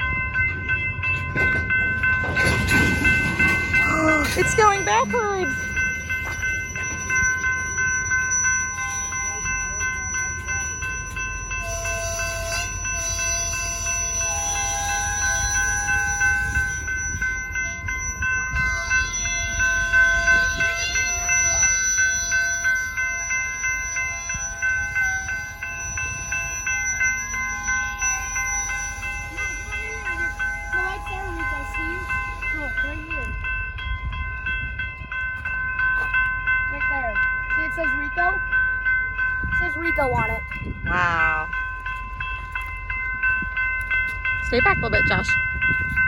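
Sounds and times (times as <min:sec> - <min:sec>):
train rumbling: 0:00.0 - 0:46.0
high-pitched train squealing: 0:02.3 - 0:33.5.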